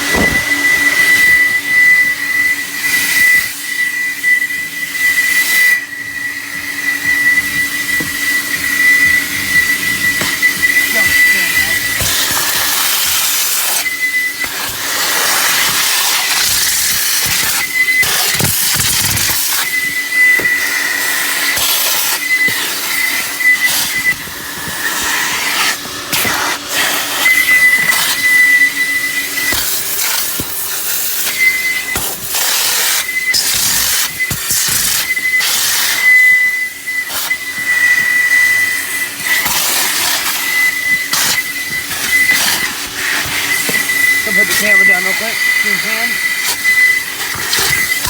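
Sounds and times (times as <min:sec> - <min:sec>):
vacuum suction rushing: 0:00.0 - 0:18.2
high whistle: 0:00.0 - 0:25.2, 0:27.0 - 0:30.0, 0:30.8 - 0:48.0.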